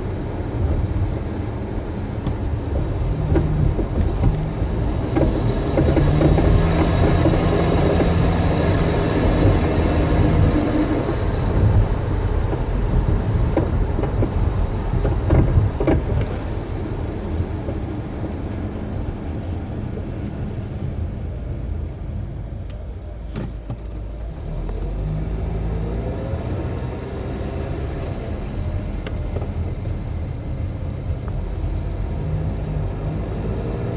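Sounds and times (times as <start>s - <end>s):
car road noise: 0.0s - 33.9s
suspension knocks: 2.2s - 16.5s.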